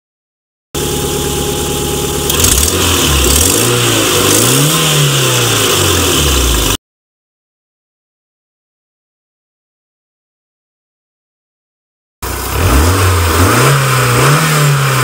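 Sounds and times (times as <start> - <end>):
car engine idling and revving: 0.8 - 6.8, 12.2 - 15.0.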